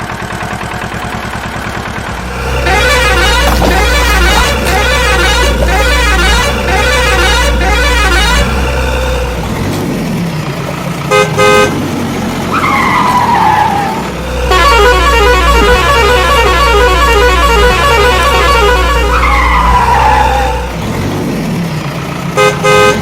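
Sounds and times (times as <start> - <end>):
loud vehicle rumble: 0.0 - 23.0
horn toots: 2.3 - 9.4, 11.1 - 20.8, 22.4 - 23.0.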